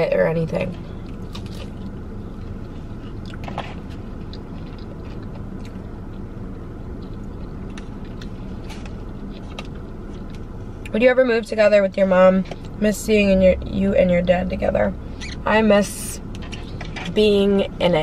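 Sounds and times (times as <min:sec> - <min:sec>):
car cabin hum: 0:00.0 - 0:18.0
chewing: 0:01.0 - 0:06.2.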